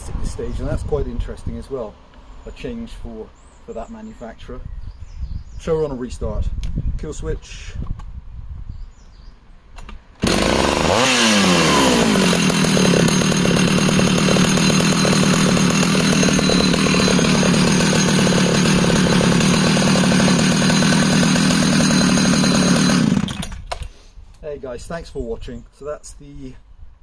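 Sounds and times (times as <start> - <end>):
chainsaw starting and idling: 10.2 - 24.0.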